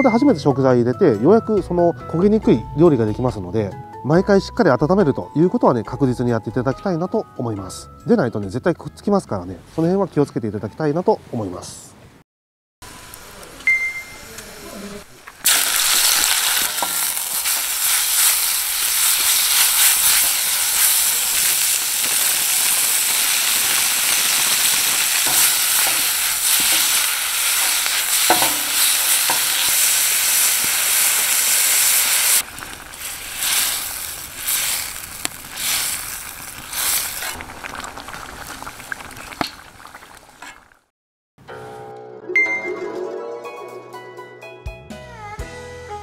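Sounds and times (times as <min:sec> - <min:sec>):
food sizzling in a wok: 0:12.8 - 0:40.8
sauce bubbling: 0:15.4 - 0:40.9
ladle clicking against pan: 0:25.2 - 0:29.9.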